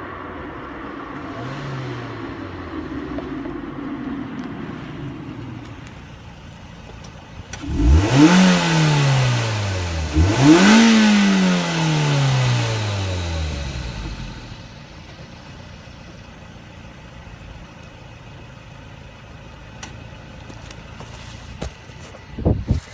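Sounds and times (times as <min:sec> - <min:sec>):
faint low rumble: 0:00.0 - 0:08.0
car engine revs falling: 0:00.6 - 0:15.1.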